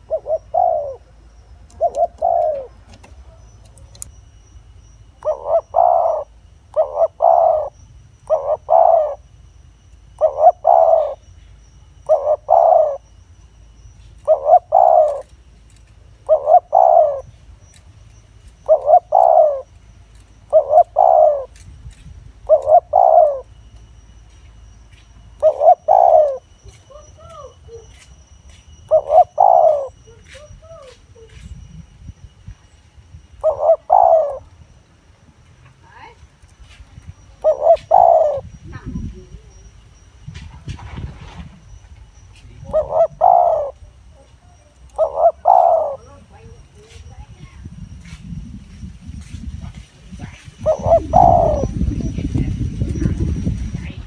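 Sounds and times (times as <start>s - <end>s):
dove cooing: 0.0s - 4.2s, 5.1s - 9.3s, 10.1s - 11.3s, 12.0s - 13.1s, 14.2s - 15.4s, 16.2s - 17.7s, 18.5s - 19.8s, 20.4s - 21.6s, 22.4s - 23.6s, 25.4s - 28.2s, 28.8s - 31.8s, 33.4s - 34.6s, 37.2s - 39.8s, 40.4s - 47.8s, 49.5s - 54.0s
faint high chirps: 0.0s - 54.0s.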